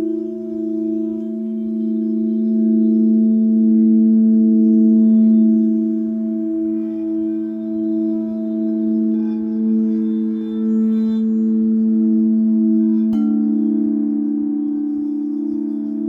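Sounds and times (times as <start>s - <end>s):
singing bowls ringing: 13.2s - 16.0s.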